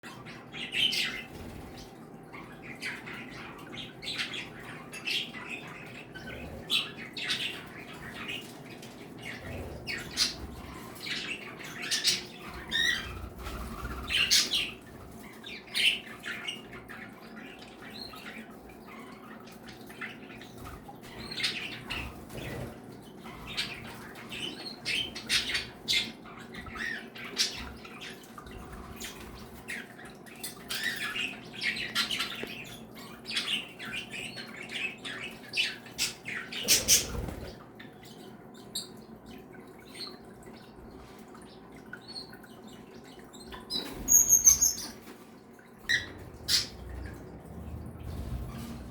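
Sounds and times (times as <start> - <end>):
pet birds chirping and squawking: 0.1 - 48.9.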